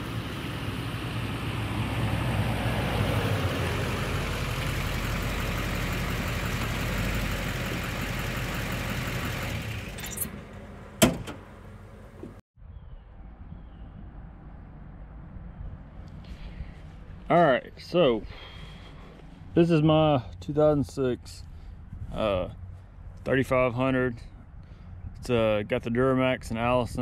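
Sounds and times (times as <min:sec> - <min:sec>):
diesel pickup driving past: 0:00.0 - 0:12.4.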